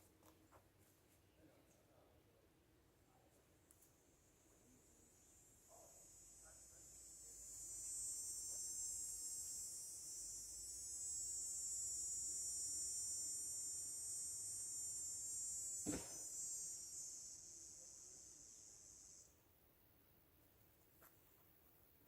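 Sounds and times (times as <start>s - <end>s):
high-pitched insect chorus: 3.8s - 20.0s
single thump: 15.8s - 16.3s.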